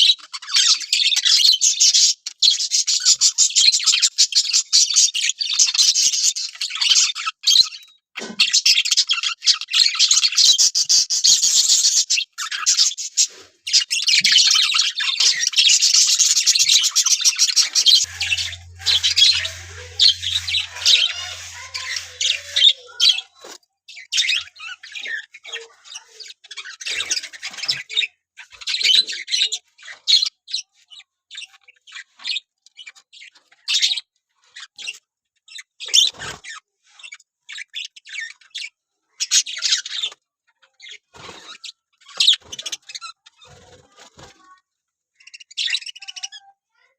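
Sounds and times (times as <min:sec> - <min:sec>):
budgerigars chattering: 0:15.8 - 0:23.2.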